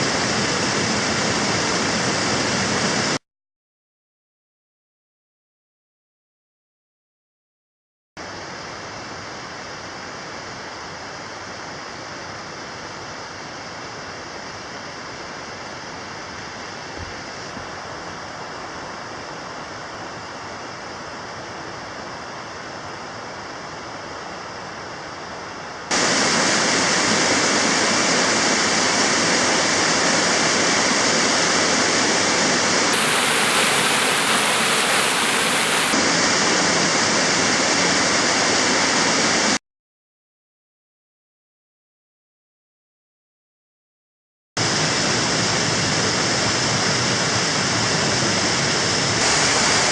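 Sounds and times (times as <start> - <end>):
water rushing over waterfalls: 25.9 - 39.6, 44.6 - 49.9.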